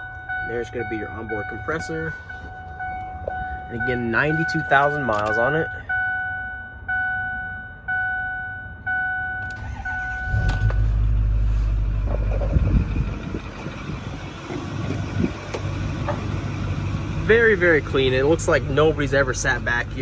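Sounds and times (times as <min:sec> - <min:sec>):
two-tone vehicle warning chime: 0:00.0 - 0:11.0, 0:15.5 - 0:20.0
diesel engine starting and idling: 0:09.4 - 0:20.0.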